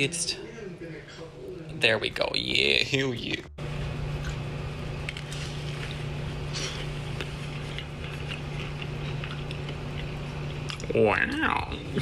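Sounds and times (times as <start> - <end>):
low hum: 1.2 - 12.0
person chewing soft food: 3.7 - 11.6.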